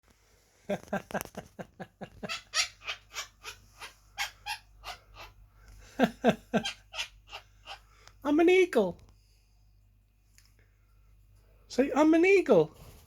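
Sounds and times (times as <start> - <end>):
parrot imitating laughter: 2.0 - 5.4, 6.0 - 7.8.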